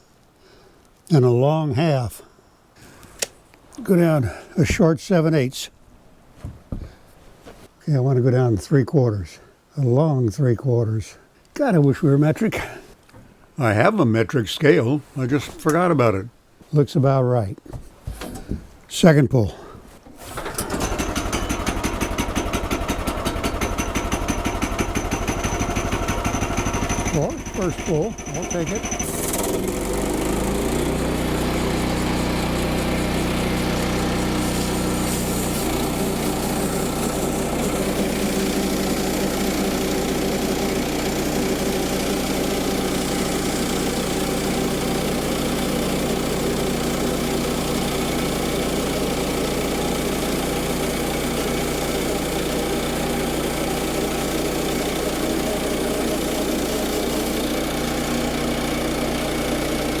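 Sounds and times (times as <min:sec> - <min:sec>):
sawmill gasoline engine running: 0:20.2 - 1:00.0.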